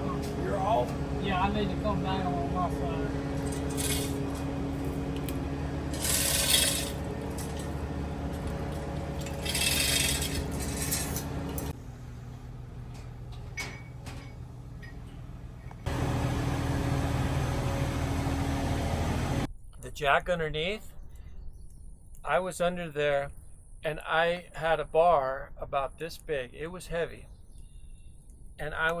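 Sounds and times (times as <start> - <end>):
heavy machinery humming: 0.0 - 19.5.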